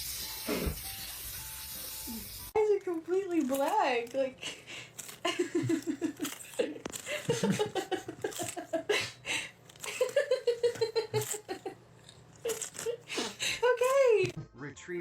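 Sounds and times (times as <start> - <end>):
person laughing: 5.2 - 11.8.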